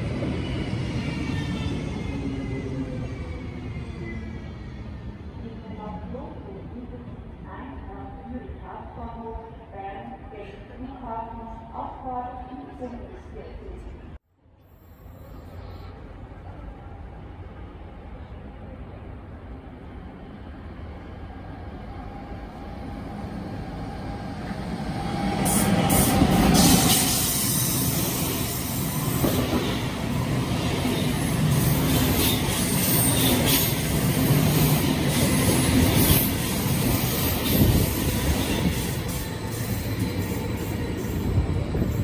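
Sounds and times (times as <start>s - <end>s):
train passing rumble: 14.8s - 42.0s.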